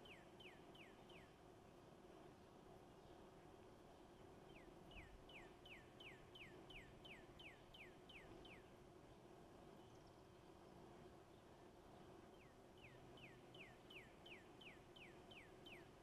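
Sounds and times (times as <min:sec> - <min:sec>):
songbird singing: 0:00.0 - 0:01.4, 0:04.4 - 0:08.7, 0:12.3 - 0:16.0.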